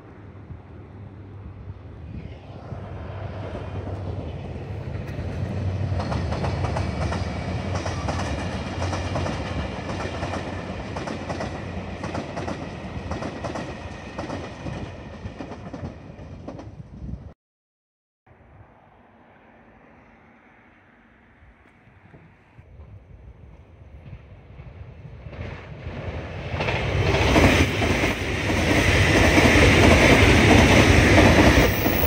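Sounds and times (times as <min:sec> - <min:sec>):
train rumble: 0:00.0 - 0:17.4, 0:18.6 - 0:32.0
wheels clickety-clack over rail joints: 0:03.4 - 0:17.0, 0:22.0 - 0:32.0.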